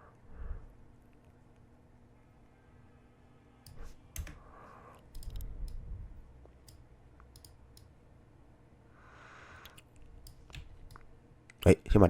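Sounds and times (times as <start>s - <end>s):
computer mouse clicking: 3.6s - 4.4s, 5.0s - 5.8s, 6.4s - 7.9s, 9.6s - 11.7s.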